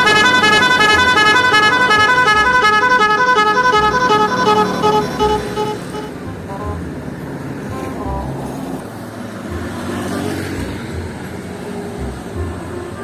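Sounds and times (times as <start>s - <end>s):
multi-tone bus horn: 0.0s - 8.9s, 12.0s - 13.0s.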